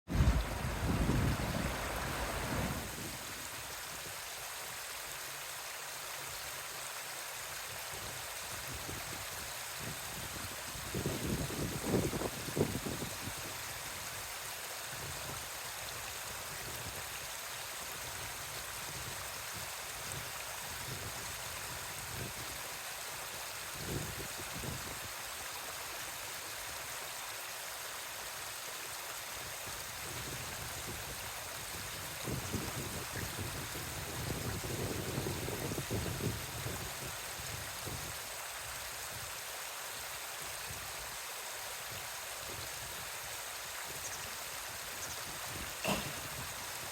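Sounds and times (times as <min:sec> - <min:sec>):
running water rushing: 0:00.1 - 0:46.9.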